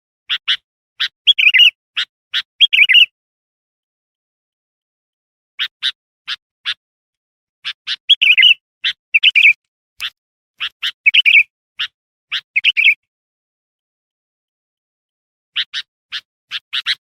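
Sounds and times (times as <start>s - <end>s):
bird chirping and warbling: 0.3s - 3.2s, 5.6s - 6.8s, 7.6s - 13.1s, 15.5s - 17.0s.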